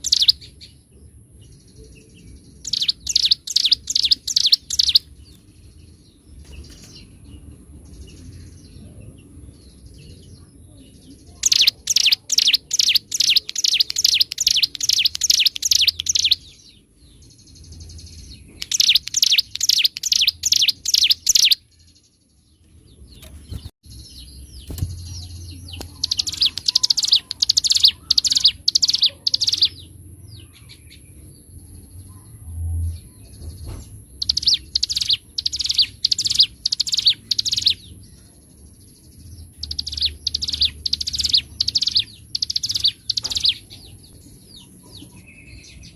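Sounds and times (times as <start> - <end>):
bird singing sharp high notes: 2.6 - 5.1, 11.4 - 16.5, 18.6 - 21.6.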